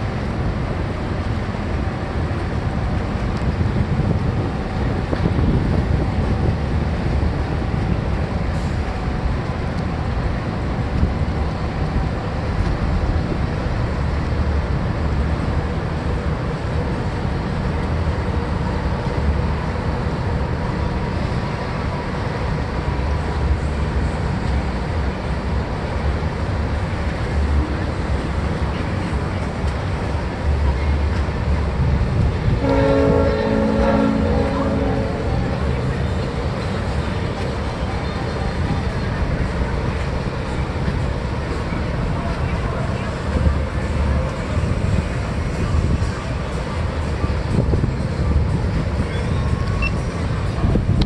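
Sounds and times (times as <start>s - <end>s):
wind noise: 0.0s - 14.2s, 31.1s - 37.7s, 43.1s - 51.0s
boat engines rumbling: 0.0s - 51.0s.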